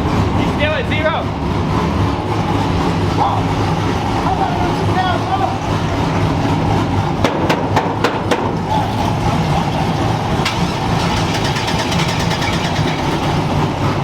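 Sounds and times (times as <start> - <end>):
vehicle engine idling: 0.0 - 14.0
fast ticking: 11.0 - 13.5.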